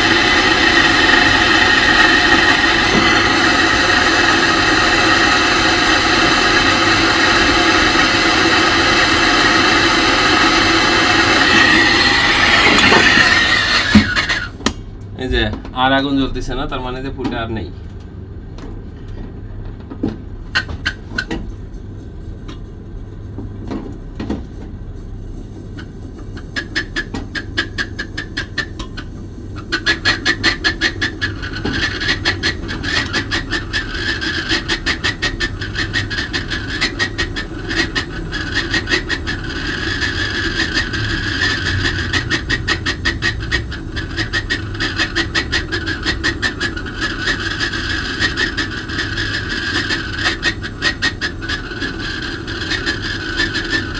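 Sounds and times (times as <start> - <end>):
torch flame hissing: 0.0 - 14.8, 25.8 - 53.9.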